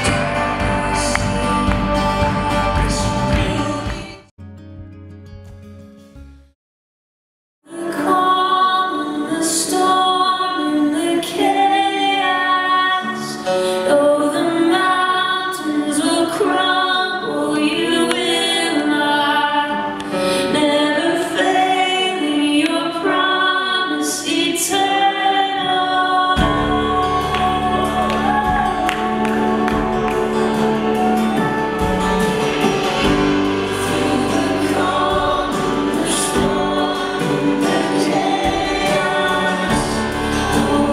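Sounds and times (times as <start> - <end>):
worship singing: 0.0 - 4.3, 7.7 - 40.9
drums: 0.0 - 5.9, 26.4 - 40.9
bass guitar: 0.0 - 6.5, 26.4 - 40.9.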